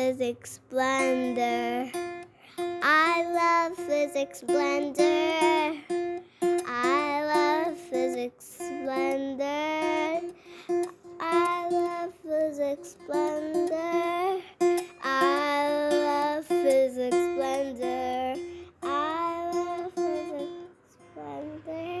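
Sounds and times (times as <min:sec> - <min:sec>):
plucked strings: 0:00.8 - 0:22.0
person singing jingle: 0:06.6 - 0:22.0.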